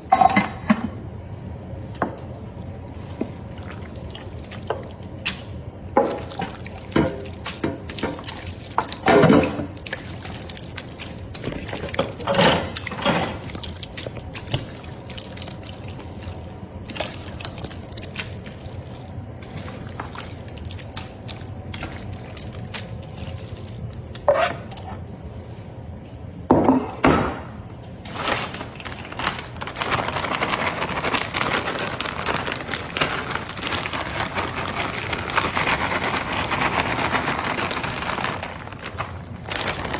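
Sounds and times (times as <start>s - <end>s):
clattering in kitchen sink: 0.0s - 1.0s, 5.9s - 9.8s, 11.4s - 13.6s, 26.5s - 27.5s.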